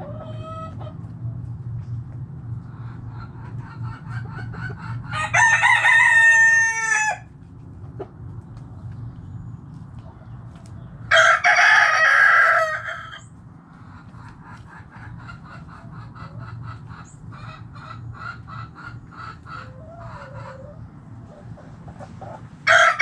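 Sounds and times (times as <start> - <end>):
hen clucking: 0.0 - 1.1, 2.5 - 9.1, 11.2 - 23.0
rooster crowing: 5.1 - 7.3, 11.1 - 13.3, 22.6 - 23.0.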